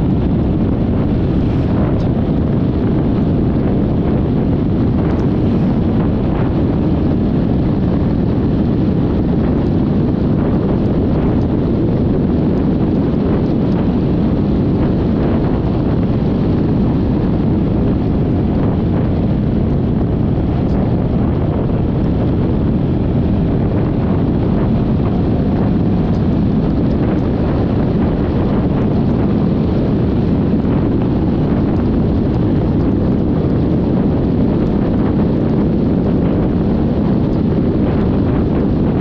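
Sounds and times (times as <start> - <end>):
road noise: 0.0 - 38.9
wind rushing over microphone: 0.0 - 39.0.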